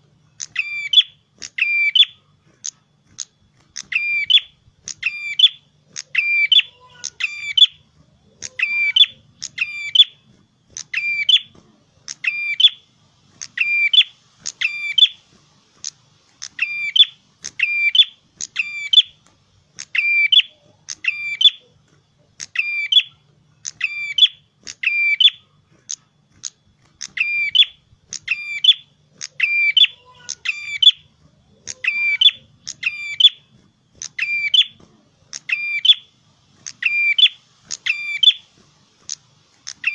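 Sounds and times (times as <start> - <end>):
songbird singing high phrases: 0.4 - 2.2, 3.8 - 7.8, 8.4 - 10.2, 10.8 - 11.5, 12.1 - 15.2, 16.4 - 19.2, 19.8 - 21.7, 22.4 - 25.4, 26.4 - 33.4, 34.0 - 38.5, 39.7 - 39.9.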